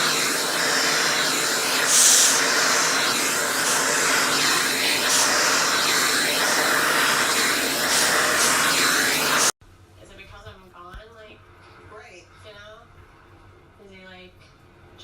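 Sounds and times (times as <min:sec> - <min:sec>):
sharp hiss: 0:00.0 - 0:09.5
electric blower rushing air: 0:00.0 - 0:09.6.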